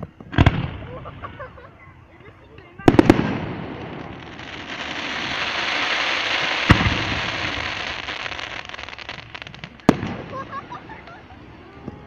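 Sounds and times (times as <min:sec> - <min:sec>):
fireworks crackling: 0:00.0 - 0:12.0
firework bang: 0:00.2 - 0:01.4, 0:02.8 - 0:11.2.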